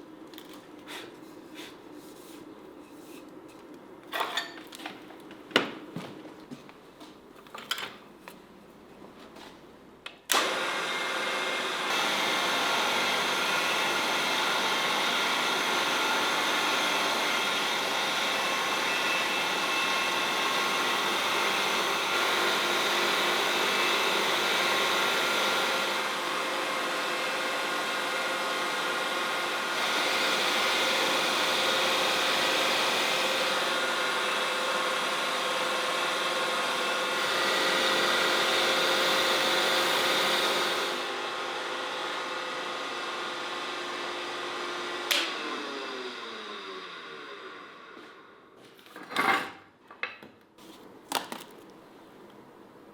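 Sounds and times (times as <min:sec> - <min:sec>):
electric power tool whirring: 0:10.3 - 0:48.0.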